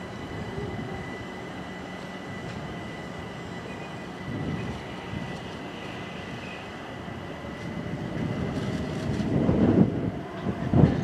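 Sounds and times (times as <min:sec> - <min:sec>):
electric train approaching: 0:00.0 - 0:11.0.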